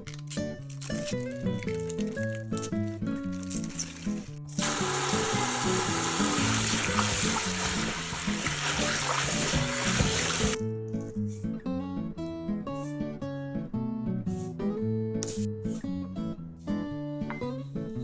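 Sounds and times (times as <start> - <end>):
acoustic guitar music: 0.0 - 18.0
water running from a tap: 4.6 - 10.6.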